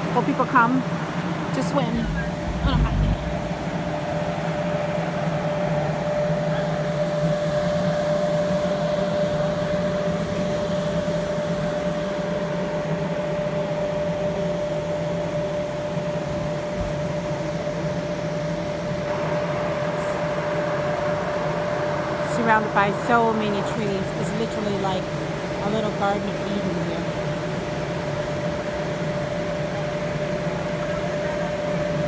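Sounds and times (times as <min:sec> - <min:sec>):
water pump machine hum: 0:01.8 - 0:04.2.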